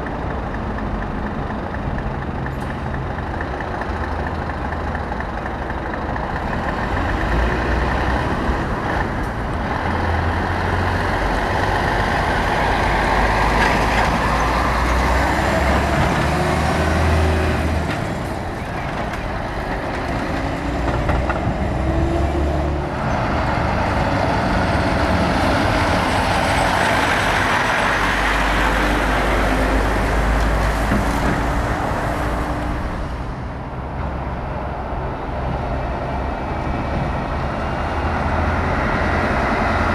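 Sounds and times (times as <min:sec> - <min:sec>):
heavy diesel trucks driving past: 0:00.0 - 0:39.9.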